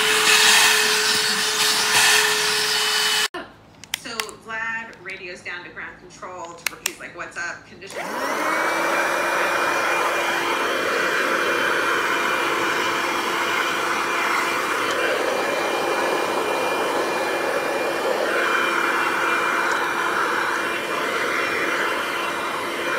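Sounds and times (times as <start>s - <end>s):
handheld vacuum whining: 0.0s - 3.3s, 7.9s - 22.9s.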